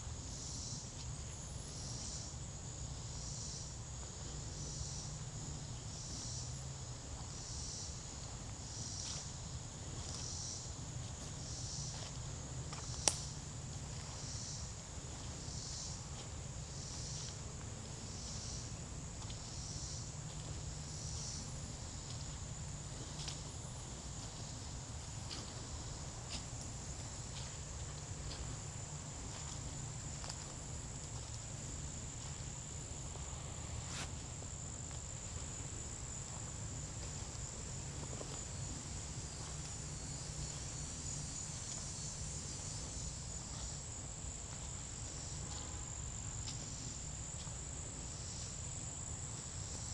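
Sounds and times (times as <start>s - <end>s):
insects droning: 0.0s - 49.9s
footsteps on forest trail: 7.2s - 45.7s.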